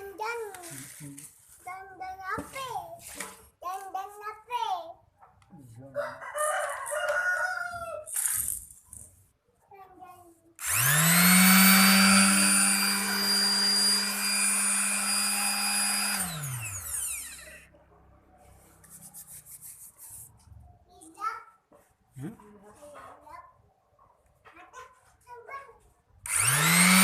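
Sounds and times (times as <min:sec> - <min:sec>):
electric sander whining: 0:10.6 - 0:17.7, 0:26.3 - 0:27.0.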